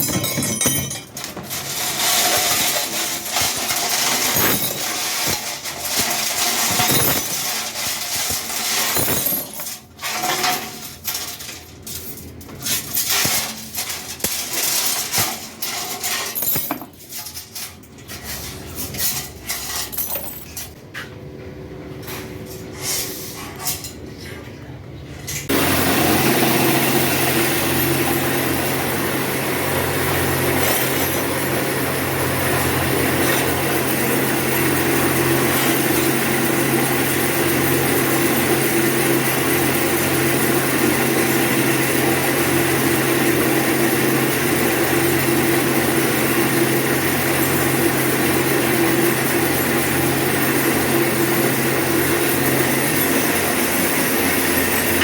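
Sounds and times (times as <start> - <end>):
power tool motor running: 25.5 - 48.5.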